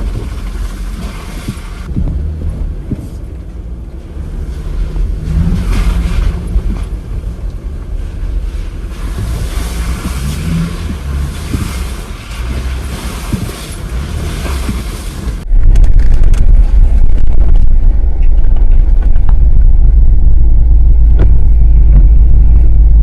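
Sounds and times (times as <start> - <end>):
off-road vehicle engine rumble: 0.0 - 23.0
wind and rain hiss: 3.6 - 15.4.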